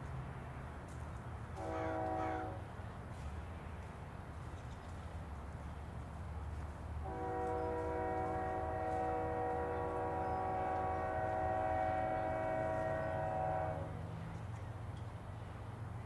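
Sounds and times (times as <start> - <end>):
train rumble: 0.0 - 16.0
locomotive air horn blast: 1.6 - 2.7, 7.0 - 14.0.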